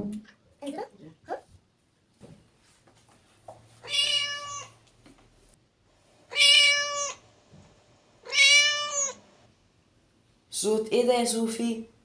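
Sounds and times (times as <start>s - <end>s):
cat meowing: 3.8s - 4.8s, 6.3s - 7.2s, 8.2s - 9.3s.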